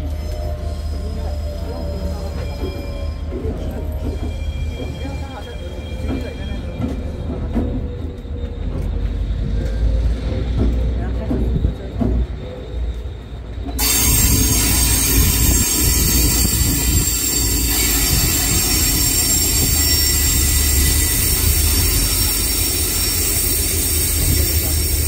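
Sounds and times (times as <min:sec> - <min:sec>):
train rumbling: 0:00.0 - 0:25.0
high-pitched squealing tones: 0:13.8 - 0:25.0.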